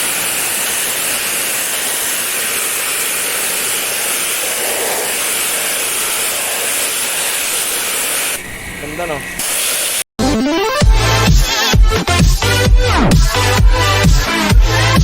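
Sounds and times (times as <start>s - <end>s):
pressure washer jet hissing: 0.0s - 10.1s.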